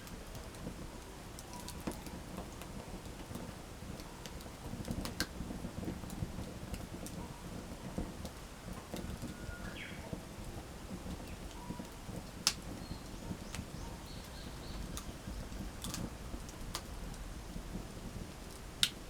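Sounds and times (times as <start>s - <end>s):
wood fire crackling: 0.0s - 19.0s
sharp fire pops: 10.9s - 19.0s.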